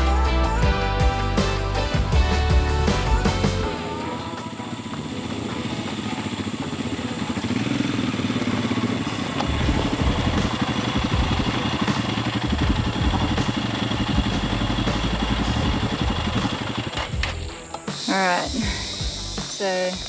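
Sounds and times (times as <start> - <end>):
motorcycle engine running: 5.0 - 17.6
low rumble: 9.5 - 11.6, 12.5 - 16.5.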